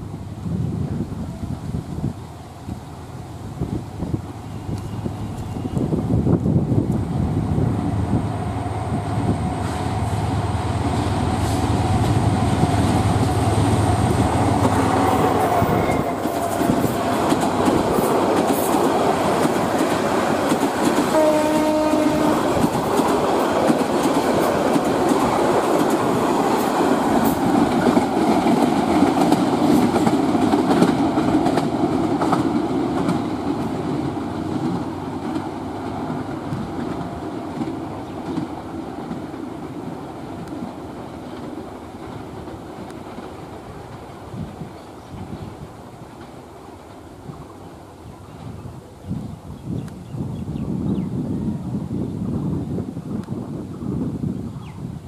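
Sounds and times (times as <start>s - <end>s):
diesel locomotive engine drumming: 4.3s - 43.2s
train wheels clattering over rail joints: 11.4s - 44.1s
train horn blast: 14.4s - 17.1s, 21.1s - 22.7s.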